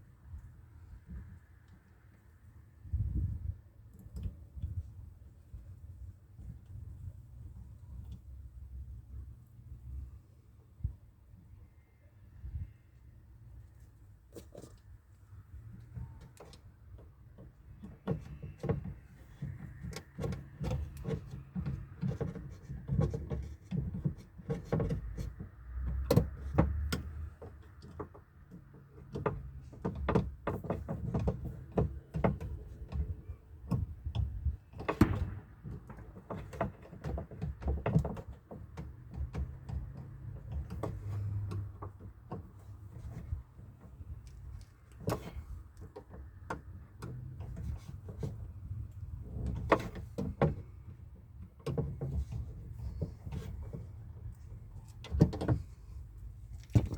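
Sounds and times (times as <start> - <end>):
car door parts clicking and rattling: 15.9 - 56.9.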